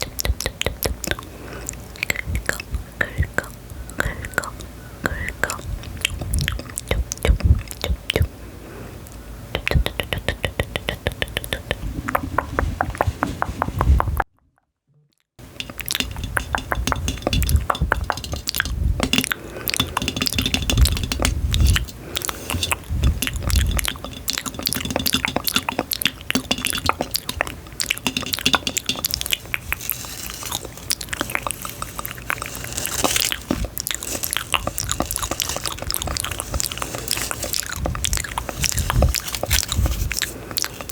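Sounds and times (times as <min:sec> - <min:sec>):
close chewing and biting: 0:00.0 - 0:08.3, 0:15.4 - 0:40.9
crisp clicks and crackles: 0:15.4 - 0:40.9.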